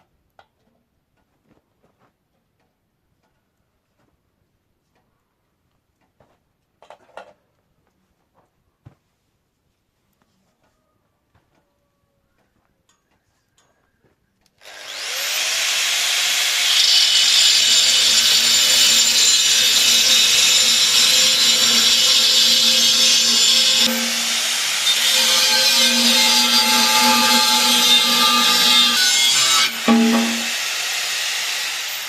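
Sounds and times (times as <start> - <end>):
angle grinder cutting steel: 14.6 - 32.0.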